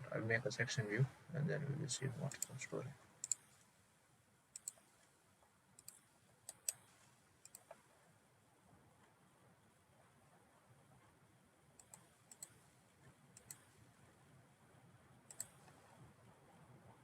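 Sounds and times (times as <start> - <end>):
computer mouse clicks: 2.2 - 3.6, 4.5 - 5.1, 5.8 - 8.0, 11.8 - 13.8, 15.3 - 16.0.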